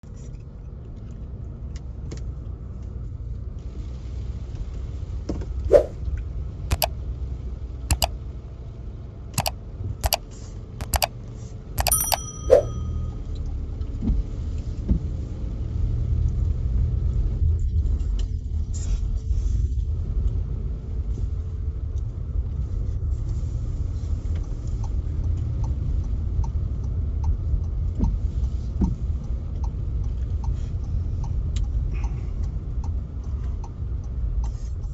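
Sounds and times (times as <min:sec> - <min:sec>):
car engine and road rumble: 0:00.0 - 0:34.9
sharp clicks: 0:06.7 - 0:06.9, 0:07.9 - 0:08.1, 0:09.4 - 0:10.2, 0:10.8 - 0:11.1, 0:11.8 - 0:12.9.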